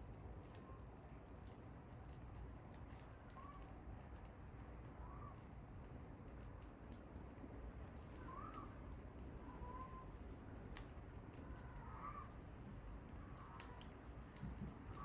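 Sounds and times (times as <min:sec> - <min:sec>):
wood fire crackling: 0:00.0 - 0:15.0
faint bird calls: 0:05.0 - 0:05.5, 0:08.1 - 0:08.8, 0:09.4 - 0:10.2, 0:11.3 - 0:12.4.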